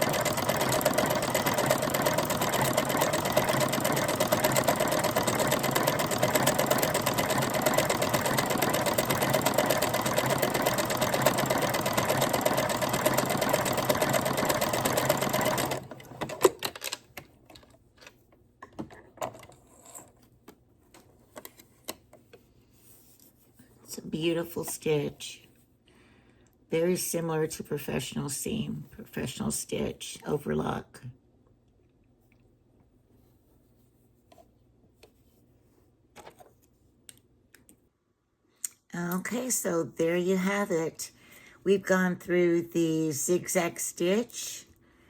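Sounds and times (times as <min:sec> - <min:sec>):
sewing machine running: 0:00.0 - 0:16.8.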